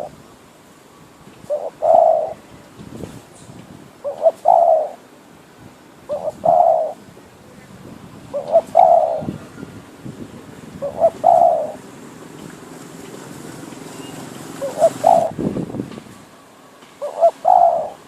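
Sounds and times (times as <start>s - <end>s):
decoy dove cooing: 1.5s - 2.5s, 4.0s - 5.0s, 6.1s - 7.0s, 8.3s - 9.8s, 10.8s - 11.8s, 14.6s - 15.4s, 17.0s - 18.0s.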